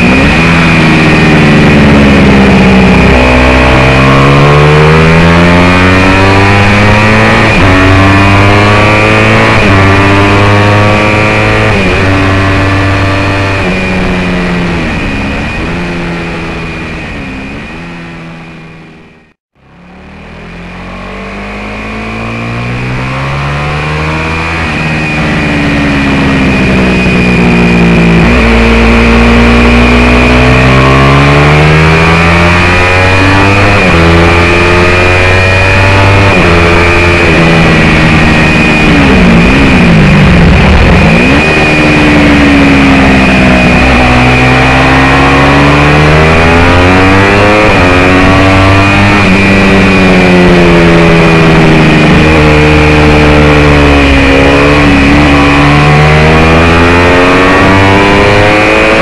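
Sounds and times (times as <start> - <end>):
racing motorcycle engine revving: 0.0 - 59.0.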